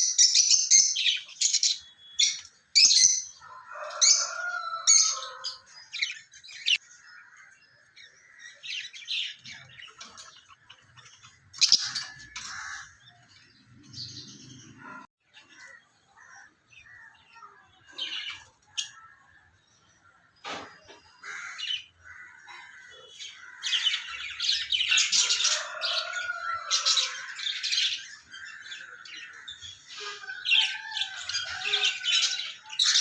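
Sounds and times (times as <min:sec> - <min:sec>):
lovebirds chirping: 0:00.0 - 0:20.2.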